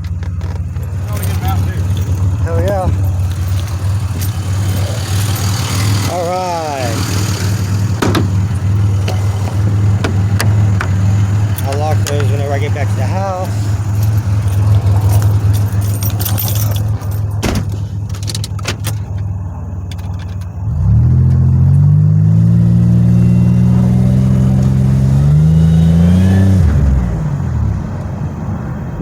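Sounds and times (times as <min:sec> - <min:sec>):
keys jangling: 0:00.0 - 0:20.6
car engine running: 0:00.0 - 0:29.0.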